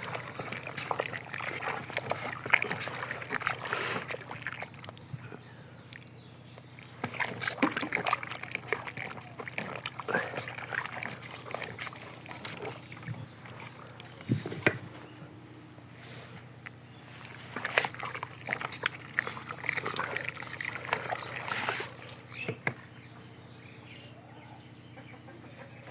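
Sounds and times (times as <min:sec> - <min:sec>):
cow slurping and chewing mash: 0:00.0 - 0:15.2, 0:16.0 - 0:23.0.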